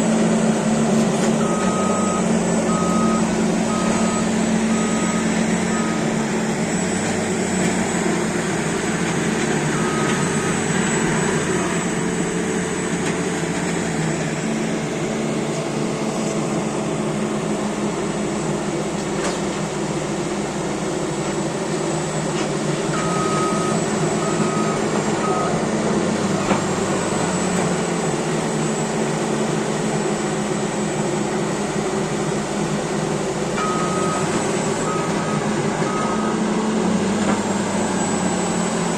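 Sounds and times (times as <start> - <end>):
bulldozer diesel engine running: 0.0 - 38.9
reversing alarm beeping: 1.3 - 12.6, 22.9 - 25.8, 33.6 - 36.8.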